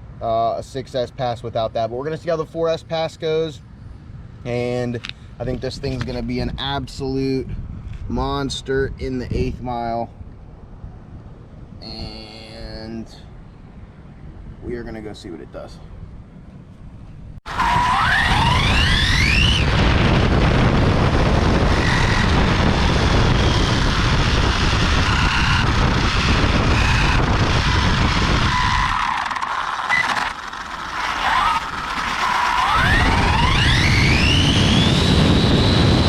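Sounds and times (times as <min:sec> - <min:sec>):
rush of wind and tyre noise: 0:03.7 - 0:36.0
electric motor whine: 0:17.5 - 0:36.0.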